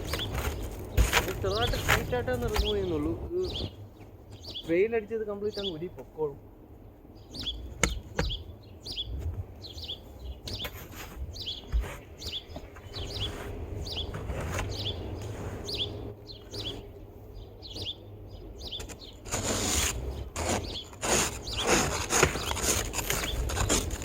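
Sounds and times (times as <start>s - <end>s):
small bird chirping: 0.0s - 4.8s, 6.8s - 19.4s, 20.1s - 24.0s
rough scraping noise: 12.8s - 16.1s, 18.8s - 24.0s.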